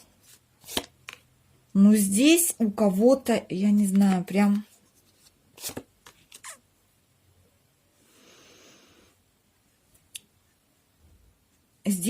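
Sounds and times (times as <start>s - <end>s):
soft rustle: 3.8s - 6.6s.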